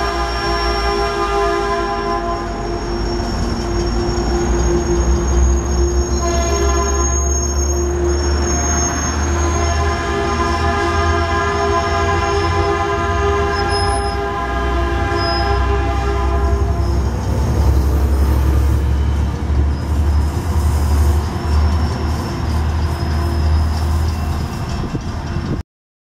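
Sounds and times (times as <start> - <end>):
train horn: 0.0 - 3.9, 5.2 - 17.8
train rumbling: 0.0 - 25.6.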